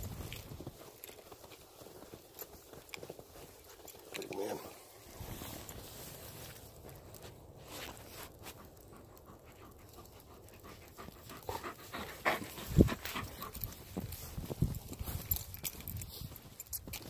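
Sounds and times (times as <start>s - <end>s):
dog panting: 8.4s - 14.2s.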